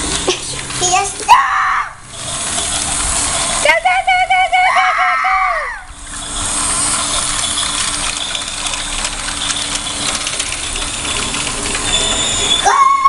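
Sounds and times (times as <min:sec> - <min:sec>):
toy train gears rattling: 0:00.0 - 0:04.9, 0:05.7 - 0:13.0
small electric motor whirring: 0:02.1 - 0:04.9, 0:05.8 - 0:12.8.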